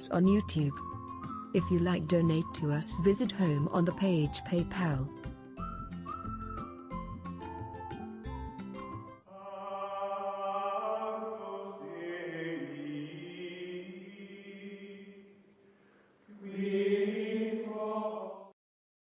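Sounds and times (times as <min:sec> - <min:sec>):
held choir-like chords: 0:09.3 - 0:15.4.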